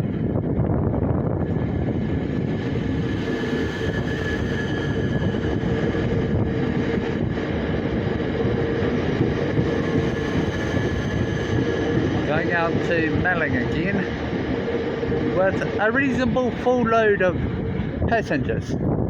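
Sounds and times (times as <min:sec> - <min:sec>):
train running gear rumble: 0:00.0 - 0:19.0.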